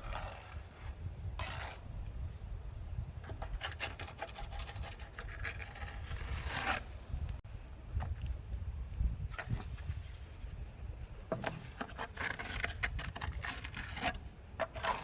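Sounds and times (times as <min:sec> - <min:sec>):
scraping and rubbing strokes: 0:00.0 - 0:01.9, 0:03.2 - 0:07.4, 0:09.4 - 0:15.0.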